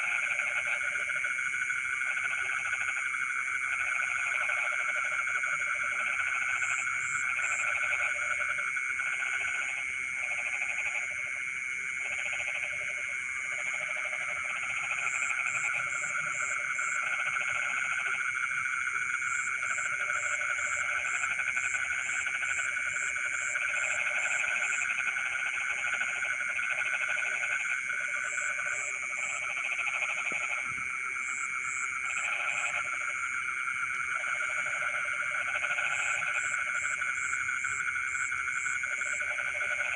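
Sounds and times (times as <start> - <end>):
frogs high trilling: 12.0 - 39.9.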